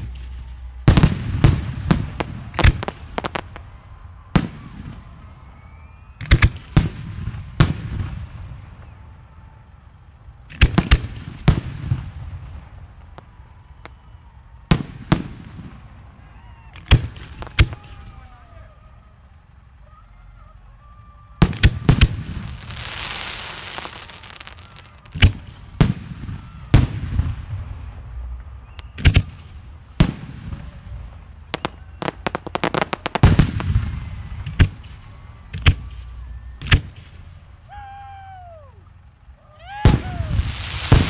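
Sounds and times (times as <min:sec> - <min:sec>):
firework shells bursting: 0:00.0 - 0:09.2, 0:10.0 - 0:19.8, 0:21.4 - 0:37.8, 0:38.9 - 0:41.0
fireworks hissing: 0:00.0 - 0:41.0
falling whistle tone: 0:03.8 - 0:06.6, 0:13.5 - 0:14.6, 0:28.5 - 0:29.4, 0:35.0 - 0:36.8.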